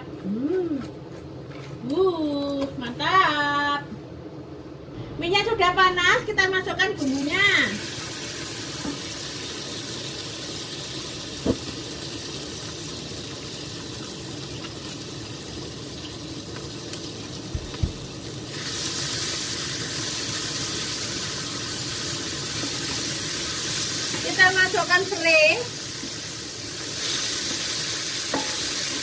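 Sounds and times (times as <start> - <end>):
spice paste sizzling in oil: 7.0 - 29.0.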